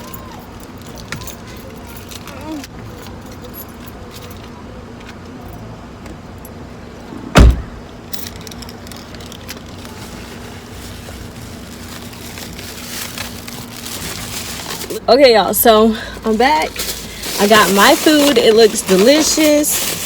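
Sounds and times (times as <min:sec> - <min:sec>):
steady low hum: 0:02.3 - 0:09.5
car door shutting: 0:07.0 - 0:08.0.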